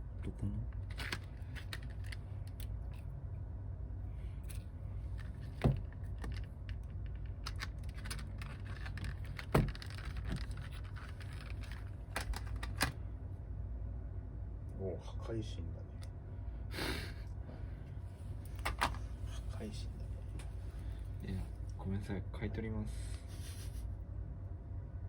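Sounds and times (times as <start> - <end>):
steady low hum: 0.0 - 25.0
tools and phone parts clicking: 5.2 - 12.9.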